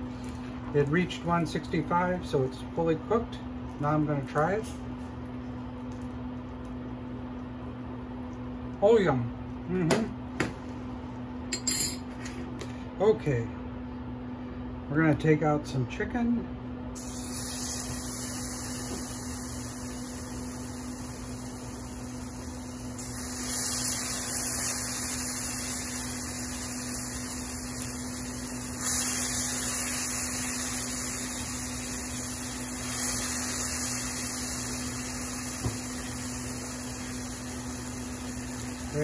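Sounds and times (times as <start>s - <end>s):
electrical hum: 0.0s - 39.0s
chicken sizzling in frying pan: 17.0s - 39.0s.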